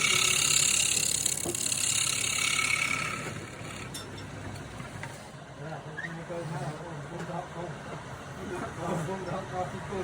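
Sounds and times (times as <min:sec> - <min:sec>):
turning tool scraping wood: 0:00.0 - 0:03.9
wood lathe running: 0:00.0 - 0:03.9.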